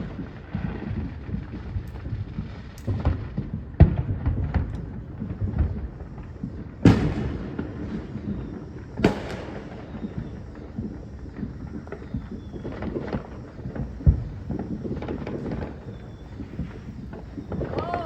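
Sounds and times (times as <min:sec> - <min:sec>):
fireworks bangs and cracks: 0:00.0 - 0:18.0
loud firework booms with echo: 0:00.0 - 0:18.0.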